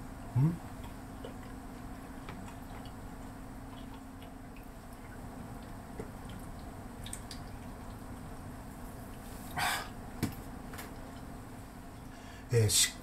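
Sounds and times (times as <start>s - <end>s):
low background hum: 0.0s - 13.0s
person chewing food: 0.4s - 8.4s.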